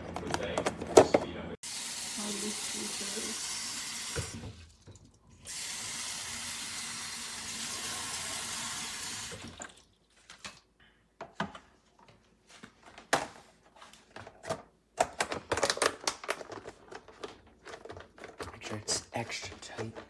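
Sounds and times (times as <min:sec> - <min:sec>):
tap water running into container: 0:01.6 - 0:10.0.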